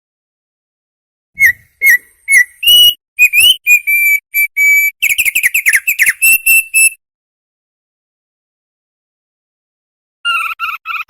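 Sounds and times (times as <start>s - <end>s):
bird singing whistled notes: 1.4s - 7.0s.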